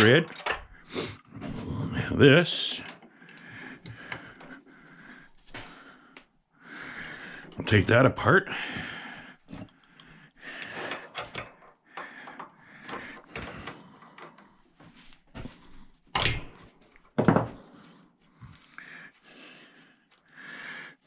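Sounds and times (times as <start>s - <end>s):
metal and tools clicking and clanking: 0.0s - 0.8s, 2.5s - 6.3s, 9.4s - 15.2s, 16.1s - 17.6s.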